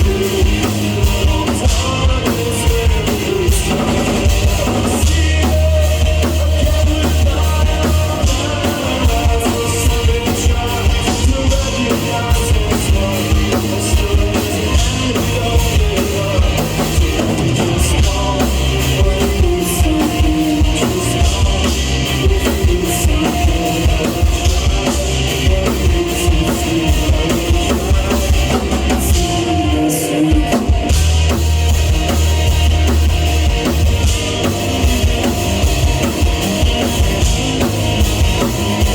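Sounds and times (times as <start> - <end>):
person singing: 0.0 - 31.4
rock band playing: 0.0 - 38.9.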